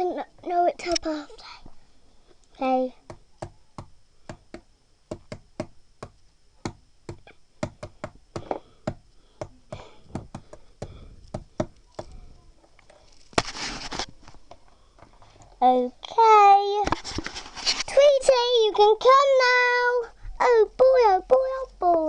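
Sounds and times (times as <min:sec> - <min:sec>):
hard objects knocking: 0:03.0 - 0:12.2.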